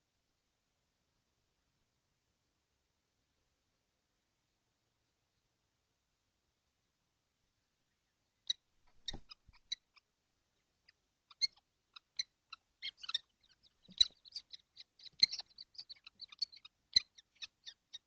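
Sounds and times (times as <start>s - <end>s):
young kestrels chirping: 7.9s - 18.0s.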